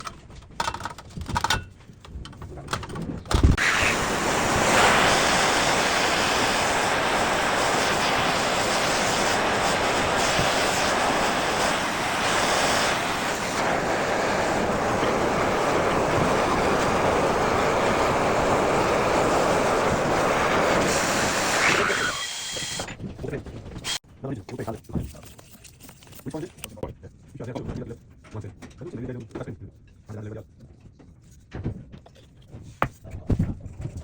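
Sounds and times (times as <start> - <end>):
gas torch hissing: 3.6 - 22.9.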